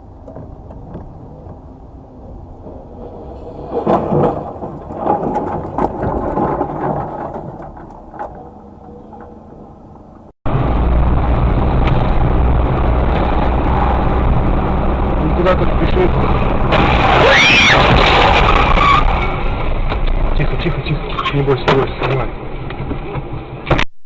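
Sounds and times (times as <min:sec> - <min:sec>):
engine and road drone: 0:00.0 - 0:23.8
car crash bangs and crunching: 0:03.6 - 0:08.5, 0:16.2 - 0:20.7.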